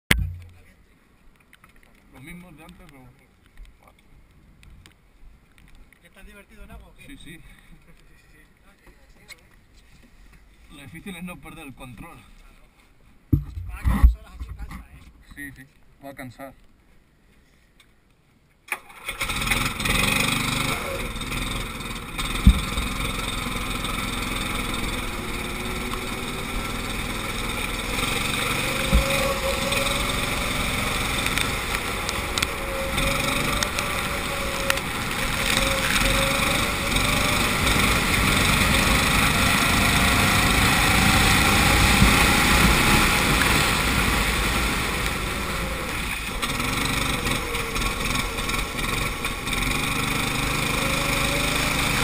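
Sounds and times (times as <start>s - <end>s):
go-kart engine accelerating: 18.7s - 52.0s
rushing noise on wet track: 18.8s - 52.0s.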